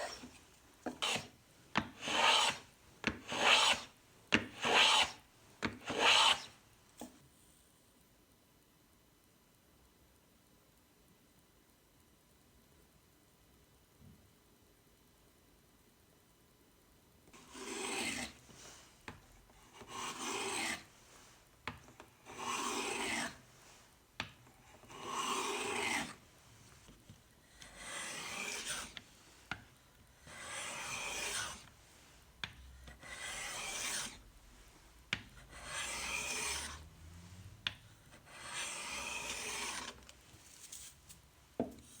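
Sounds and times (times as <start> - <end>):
hand plane shaving wood: 0.0 - 1.3, 2.0 - 2.6, 3.3 - 3.9, 4.6 - 5.2, 5.8 - 6.5, 17.4 - 18.4, 19.8 - 20.8, 22.3 - 23.4, 24.9 - 26.2, 27.7 - 29.0, 30.3 - 31.6, 33.0 - 34.2, 35.5 - 36.9, 38.2 - 40.1
plane clicking on wood: 0.9 - 1.3.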